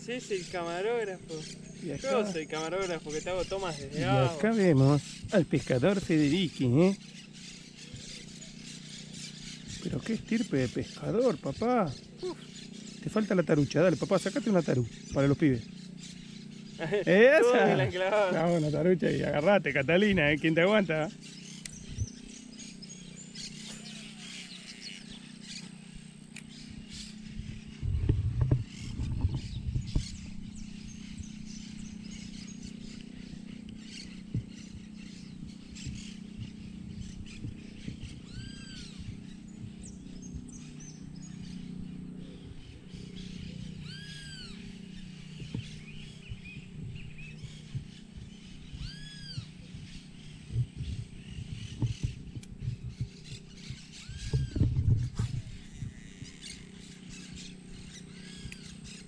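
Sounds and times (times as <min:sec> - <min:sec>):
steady low hum: 0:00.0 - 0:59.0
bird whistling call: 0:20.4 - 0:27.8, 0:28.7 - 0:59.0.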